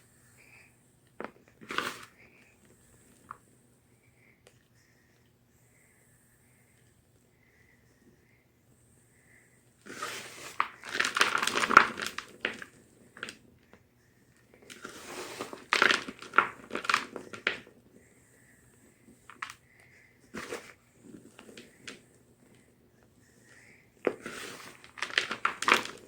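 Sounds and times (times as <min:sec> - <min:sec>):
chalk crunching and crumbling: 0:24.0 - 0:26.0.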